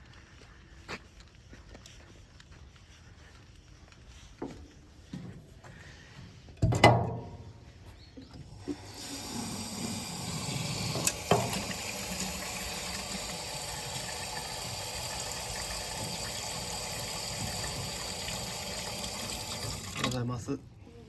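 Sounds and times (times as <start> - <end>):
running water rushing: 8.6 - 20.2.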